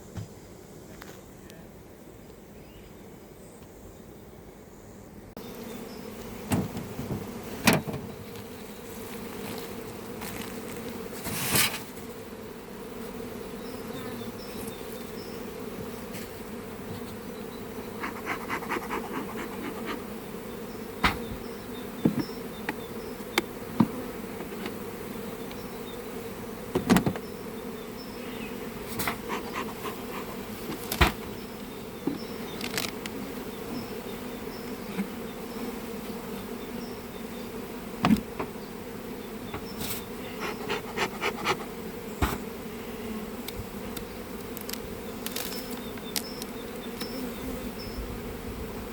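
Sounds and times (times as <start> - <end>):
honeybees buzzing: 0.0 - 48.9.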